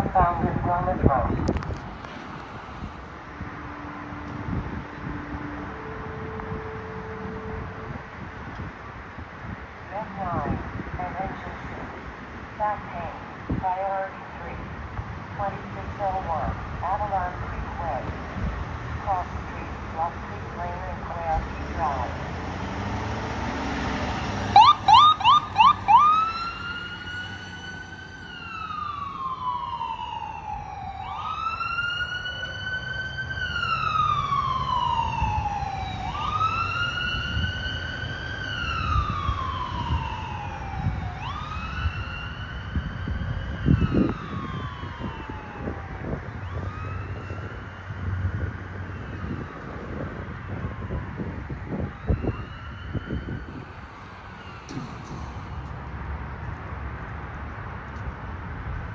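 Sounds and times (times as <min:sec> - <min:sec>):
siren wailing: 0:18.9 - 0:50.1, 0:50.8 - 0:54.7
siren chirps: 0:21.3 - 0:49.9, 0:51.7 - 0:55.6.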